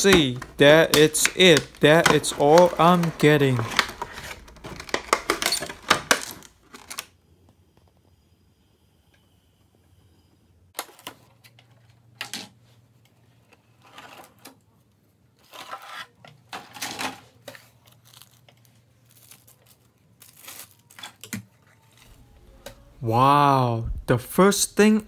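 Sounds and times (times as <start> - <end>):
packaging rustling and scraping: 0.0 - 7.1, 15.4 - 22.4.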